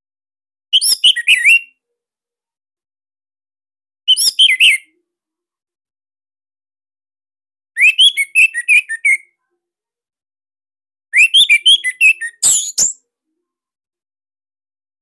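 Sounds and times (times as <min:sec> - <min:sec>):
thrush singing whistled notes: 0:11.2 - 0:13.0.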